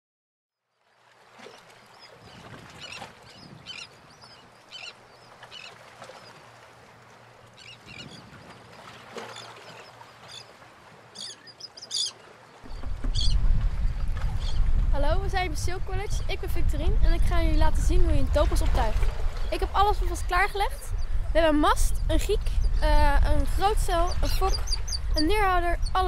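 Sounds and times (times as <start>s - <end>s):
birds calling: 1.4s - 14.7s, 23.9s - 26.0s
wind rumble on microphone: 2.2s - 4.2s, 7.8s - 8.7s, 12.6s - 26.0s.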